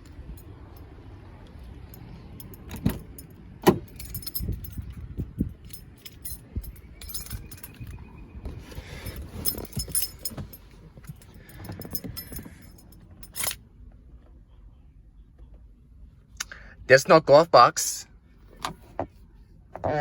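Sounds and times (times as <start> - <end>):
keys jingling: 1.6 - 8.0, 8.7 - 13.6.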